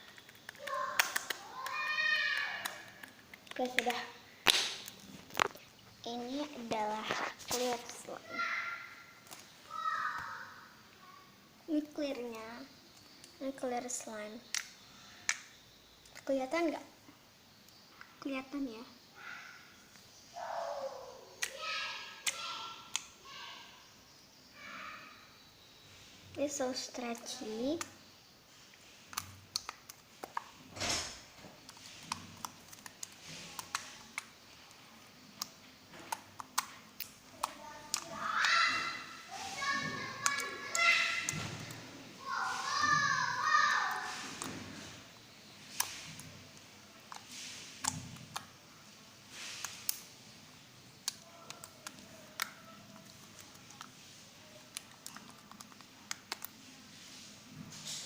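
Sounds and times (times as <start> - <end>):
slime clicking and popping: 0.0 - 5.7, 14.4 - 15.5, 29.1 - 30.6, 31.6 - 34.8, 35.4 - 38.8, 39.6 - 41.8, 47.1 - 48.5, 49.4 - 50.1, 54.7 - 56.6
slime squelching: 0.0 - 10.6, 11.8 - 16.8, 26.4 - 58.0
slime clicks and pops: 3.4 - 5.6.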